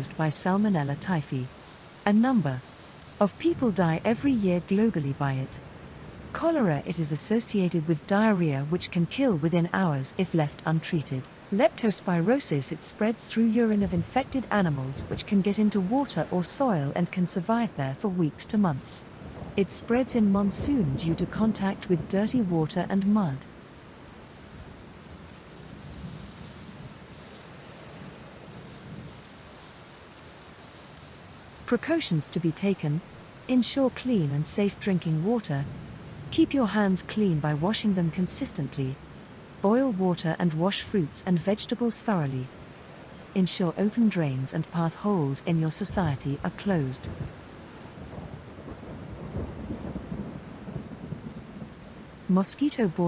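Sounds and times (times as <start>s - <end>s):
steady rain: 0.0s - 53.0s
thunder rumbling: 13.7s - 16.9s, 18.5s - 23.5s, 45.8s - 47.4s, 48.0s - 52.3s
rolling thunder rumbles: 48.0s - 52.3s.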